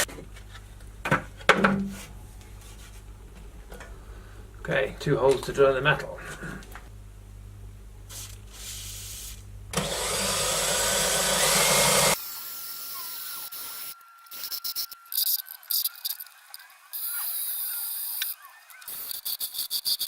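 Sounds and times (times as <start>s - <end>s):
power drill boring into metal: 9.8s - 18.2s
thin steady whine: 10.1s - 20.0s.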